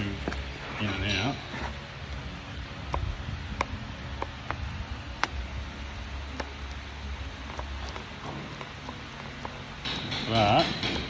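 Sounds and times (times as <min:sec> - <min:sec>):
low steady hum: 0:00.0 - 0:11.0
sharp metallic clicks: 0:02.9 - 0:11.0.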